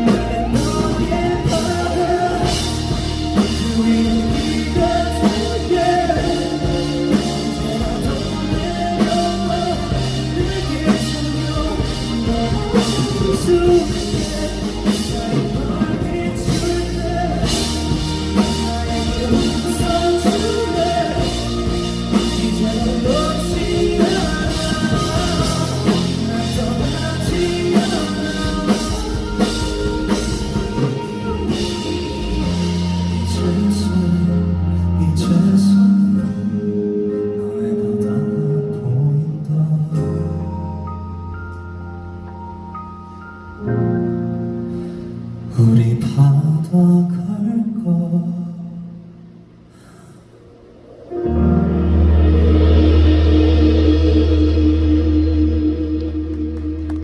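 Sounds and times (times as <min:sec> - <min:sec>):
drum kit: 0:00.0 - 0:43.2, 0:49.4 - 0:57.0
bass: 0:00.0 - 0:57.0
guitar: 0:00.0 - 0:57.0.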